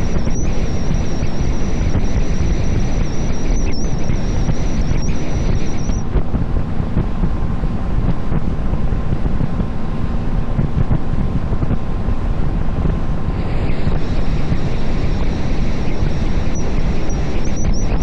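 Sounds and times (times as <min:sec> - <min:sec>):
thin high whine: 0:00.0 - 0:07.3, 0:12.2 - 0:18.0
boat engine droning: 0:00.0 - 0:18.0.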